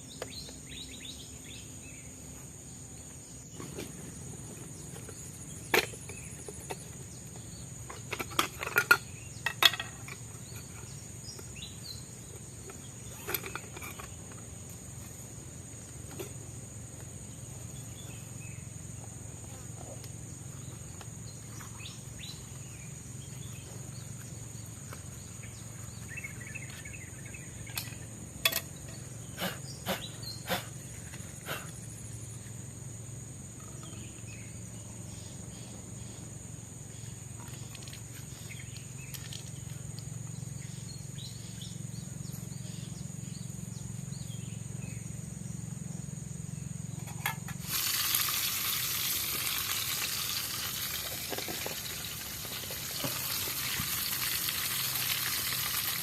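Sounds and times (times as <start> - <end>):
insects droning: 0.0 - 56.0
hot oil sizzling: 47.6 - 56.0.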